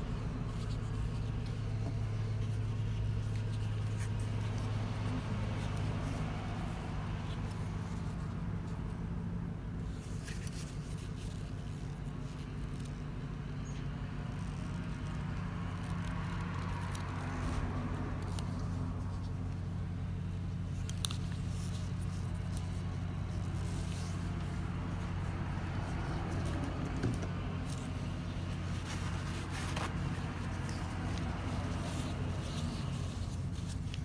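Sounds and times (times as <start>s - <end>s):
car engine idling: 18.7s - 34.0s.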